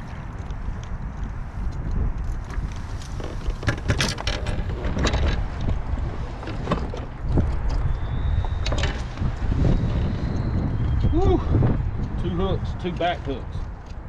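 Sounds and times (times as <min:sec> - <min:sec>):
wind rumbling on microphone: 0:00.0 - 0:14.0
sharp knocks and rattles: 0:02.5 - 0:09.5.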